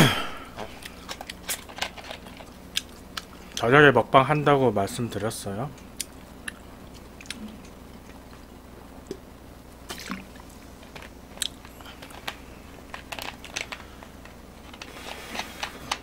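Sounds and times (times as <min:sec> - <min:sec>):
low steady hum: 0:00.0 - 0:16.0
person chewing food: 0:02.2 - 0:03.6, 0:06.0 - 0:08.5, 0:09.9 - 0:15.6.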